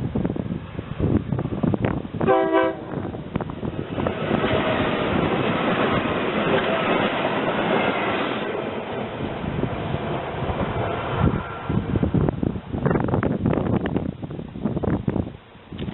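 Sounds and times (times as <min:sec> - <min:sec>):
train wheels on rail: 0:00.0 - 0:15.9
train horn blast: 0:02.2 - 0:03.2.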